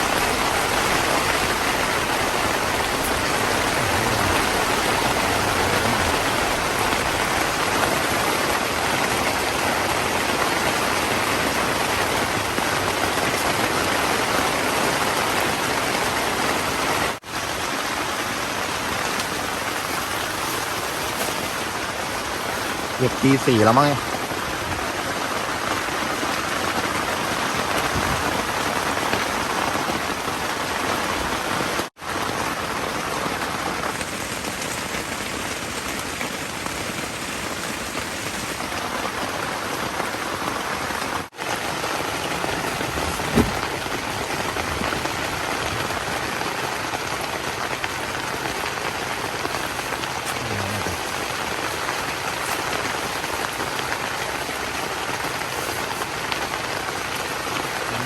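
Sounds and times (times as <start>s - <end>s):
steady rain falling: 0.0s - 58.0s
soft thud: 43.0s - 43.7s.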